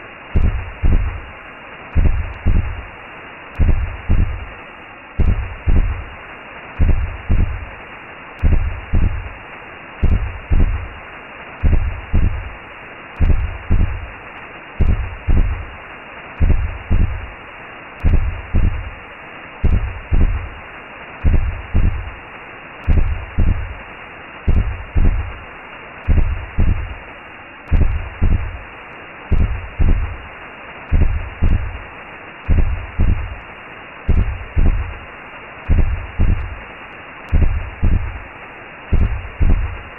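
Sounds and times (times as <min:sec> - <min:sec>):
constant whooshing noise: 0:00.0 - 0:39.9
heartbeat low double thumps: 0:00.4 - 0:01.3, 0:01.9 - 0:02.9, 0:03.6 - 0:04.5, 0:05.2 - 0:06.2, 0:06.8 - 0:07.7, 0:08.4 - 0:09.4, 0:10.0 - 0:11.0, 0:11.6 - 0:12.6, 0:13.2 - 0:14.2, 0:14.8 - 0:15.7, 0:16.4 - 0:17.4, 0:18.0 - 0:19.0, 0:19.6 - 0:20.6, 0:21.2 - 0:22.2, 0:22.8 - 0:23.8, 0:24.5 - 0:25.4, 0:26.0 - 0:27.0, 0:27.7 - 0:28.6, 0:29.3 - 0:30.2, 0:30.9 - 0:31.8, 0:32.5 - 0:33.4, 0:34.1 - 0:35.0, 0:35.7 - 0:36.6, 0:37.3 - 0:38.2, 0:38.9 - 0:39.8.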